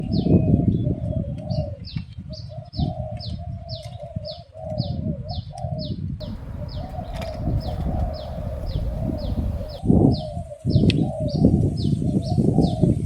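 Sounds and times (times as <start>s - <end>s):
dove cooing: 6.2s - 9.8s
low rumble: 6.2s - 9.8s
short falling bird chirp: 6.2s - 9.8s.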